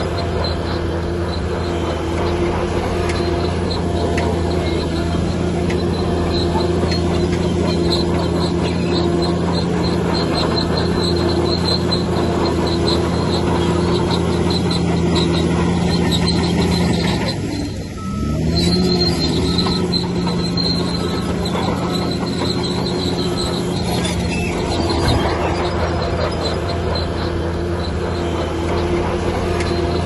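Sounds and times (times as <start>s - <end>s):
bulldozer diesel engine running: 0.0s - 30.0s
crawler tracks squealing: 0.0s - 30.0s.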